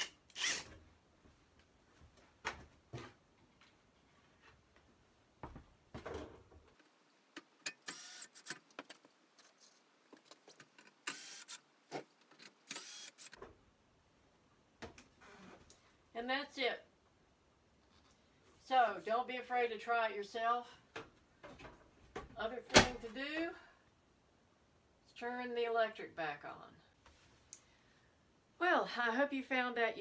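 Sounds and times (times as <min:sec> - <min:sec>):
power drill motor whine: 0:00.0 - 0:00.7, 0:07.8 - 0:08.5, 0:11.1 - 0:11.6.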